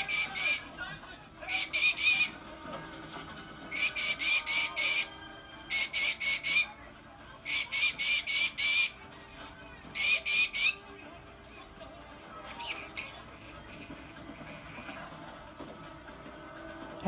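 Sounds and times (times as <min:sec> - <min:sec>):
parrot harsh calls: 0:00.0 - 0:00.7, 0:01.4 - 0:02.4, 0:03.7 - 0:06.8, 0:07.4 - 0:09.0, 0:09.9 - 0:10.8, 0:12.6 - 0:13.2.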